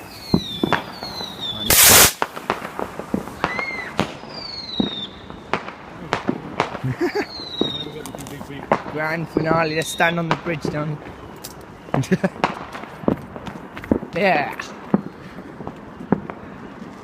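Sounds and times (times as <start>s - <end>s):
fireworks whistles falling in pitch: 0.0s - 2.5s, 3.1s - 5.6s, 7.1s - 8.1s
fireworks bangs and pops: 0.0s - 17.0s.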